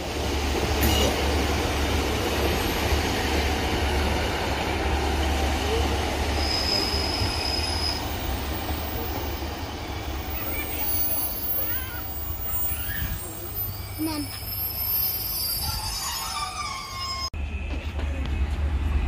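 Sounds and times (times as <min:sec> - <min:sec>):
diesel train engine rumble: 0:00.0 - 0:19.0
rail noise: 0:00.0 - 0:19.0
high thin squeal: 0:10.8 - 0:17.3.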